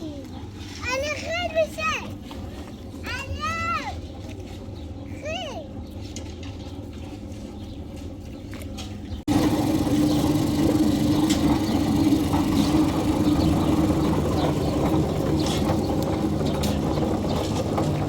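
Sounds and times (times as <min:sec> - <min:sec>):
machinery engine running: 0:09.2 - 0:18.0.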